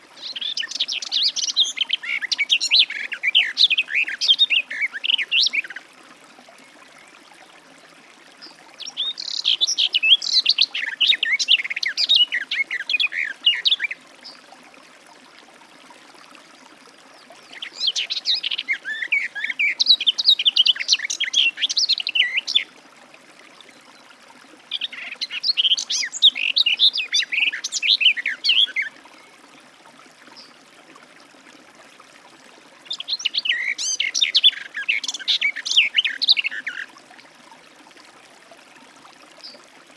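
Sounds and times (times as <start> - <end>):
bird warbling song: 0.2 - 5.8, 8.4 - 14.4, 17.2 - 22.7, 24.7 - 29.4, 32.8 - 36.9.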